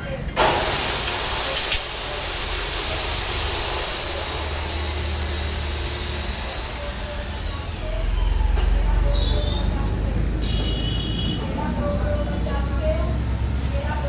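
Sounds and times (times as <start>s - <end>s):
angle grinder whining: 0.4s - 9.7s.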